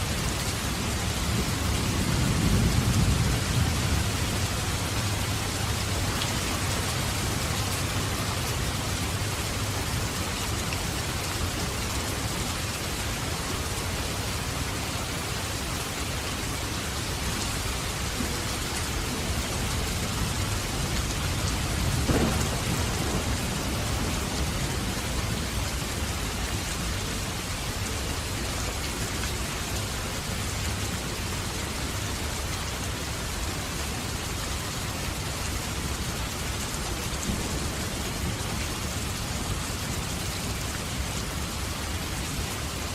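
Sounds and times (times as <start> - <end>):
heavy rain falling: 0.0 - 42.9
thunder rumbling: 1.0 - 5.9, 18.2 - 26.3.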